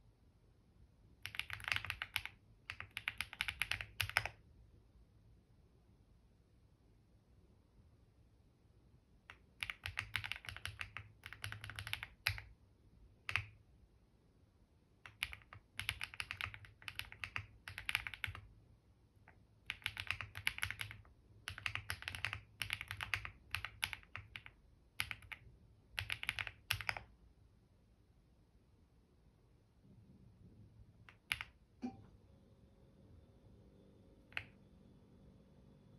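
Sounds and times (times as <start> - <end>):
typing on a computer keyboard: 1.2 - 4.4, 9.3 - 12.6, 13.2 - 13.6, 15.0 - 18.5, 19.3 - 27.1, 31.1 - 31.6, 34.3 - 34.6.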